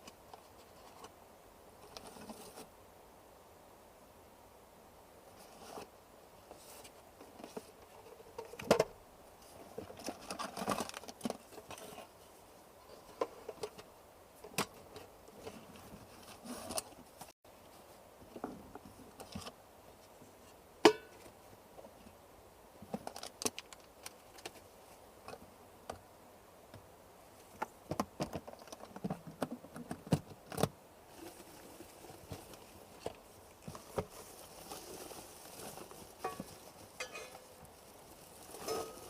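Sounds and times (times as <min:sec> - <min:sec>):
objects being handled: 0:27.4 - 0:39.0.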